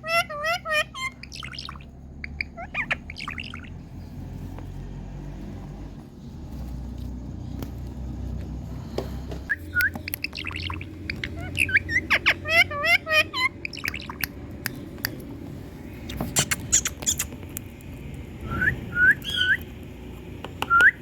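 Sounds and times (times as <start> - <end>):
parakeet chirps and whistles: 0.0 - 3.8, 9.5 - 14.3, 16.1 - 17.4, 18.4 - 19.7
low background rumble: 0.0 - 21.0.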